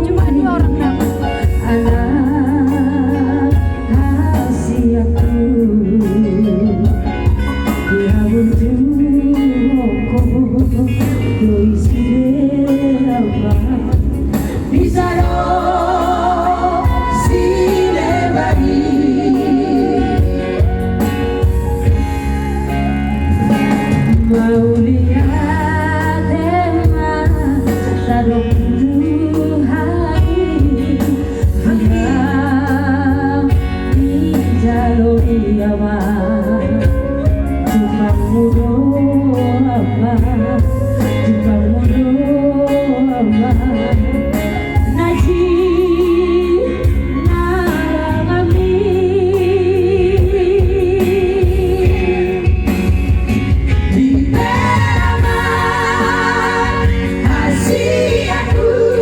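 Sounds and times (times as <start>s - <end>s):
sustained instrumental accompaniment: 0.0s - 49.0s, 49.7s - 59.0s
person singing with heavy vibrato: 11.9s - 33.4s, 53.8s - 59.0s.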